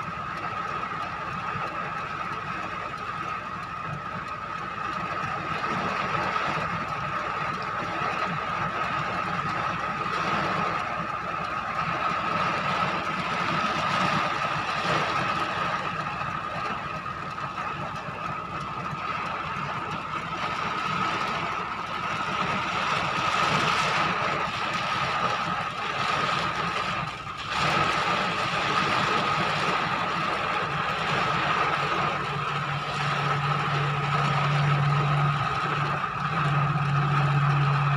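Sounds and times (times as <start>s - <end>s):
storm rain and strong wind: 0.0s - 37.9s
low hum: 9.6s - 37.9s.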